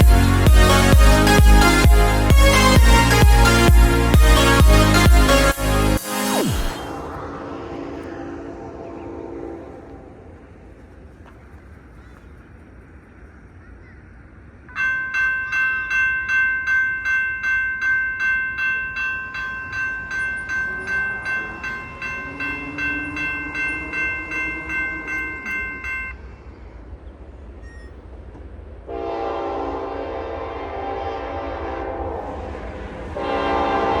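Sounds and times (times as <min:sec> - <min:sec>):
railroad crossing bell ringing: 0:00.0 - 0:05.8, 0:14.6 - 0:26.3
locomotive air horn blast: 0:00.0 - 0:10.4, 0:28.9 - 0:34.0.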